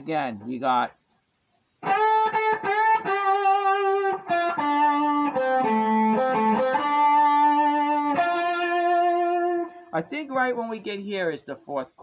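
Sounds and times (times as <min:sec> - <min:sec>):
guitar playing blues lick: 0:01.8 - 0:10.0.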